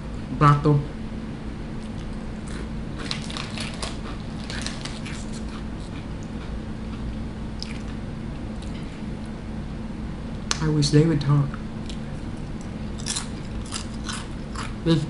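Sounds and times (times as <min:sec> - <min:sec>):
steady low hum: 0:00.0 - 0:15.0
crisp chips crunching: 0:01.8 - 0:06.0, 0:12.6 - 0:14.8.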